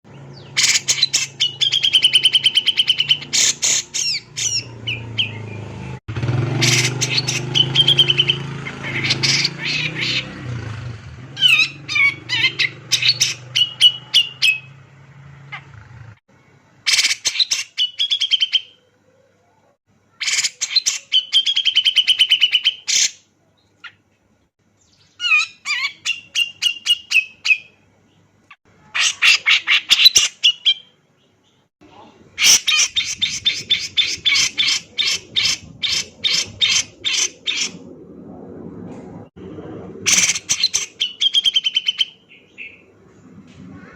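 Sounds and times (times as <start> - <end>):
bird singing chattering trills: 0.1 - 10.4, 11.4 - 14.8, 40.1 - 42.9
low hum: 33.1 - 40.2.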